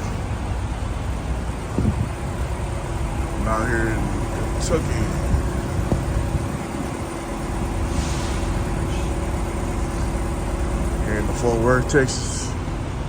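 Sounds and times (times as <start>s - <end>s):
truck diesel engine idling: 0.0s - 13.0s
brief air hiss: 7.9s - 9.2s.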